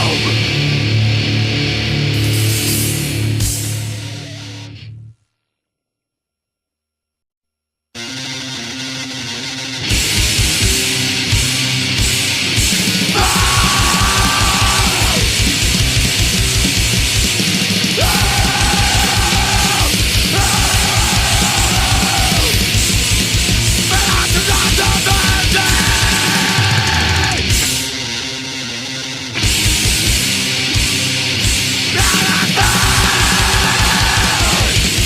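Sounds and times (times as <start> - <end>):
distorted guitars: 0.0 - 5.1, 8.0 - 35.0
fast pounding drums: 9.9 - 27.9, 29.4 - 35.0
shouted vocals: 13.0 - 15.3, 18.0 - 22.7, 23.9 - 27.5, 31.9 - 35.0.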